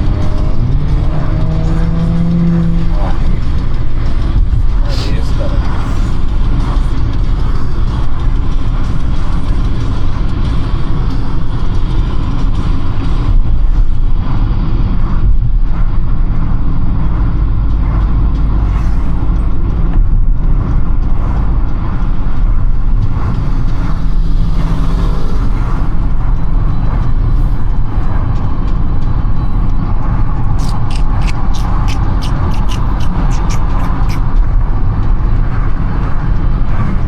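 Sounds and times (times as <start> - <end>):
car engine and tyres rumbling: 0.0 - 37.0.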